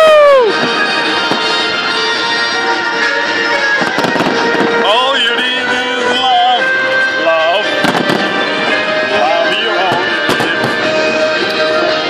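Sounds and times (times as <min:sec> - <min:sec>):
music with held notes: 0:00.0 - 0:12.0
fireworks bangs and crackles: 0:00.1 - 0:05.8, 0:07.6 - 0:11.6.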